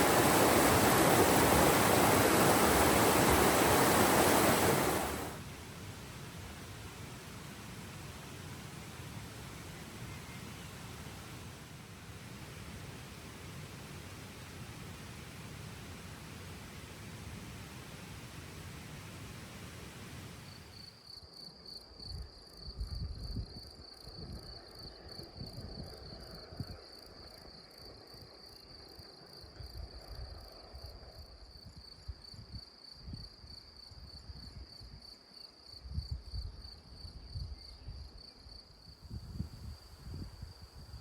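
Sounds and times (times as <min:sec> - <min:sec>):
wind rumble on microphone: 0:00.0 - 0:20.7, 0:22.2 - 0:26.9, 0:35.8 - 0:38.2, 0:39.0 - 0:41.0
even hiss: 0:00.0 - 0:20.8.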